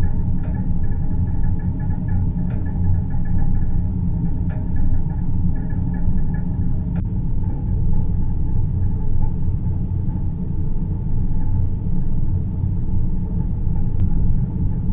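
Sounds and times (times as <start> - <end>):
faint ticks: 0.0 - 3.8, 14.0 - 14.8
low rumbling drone: 0.0 - 14.9.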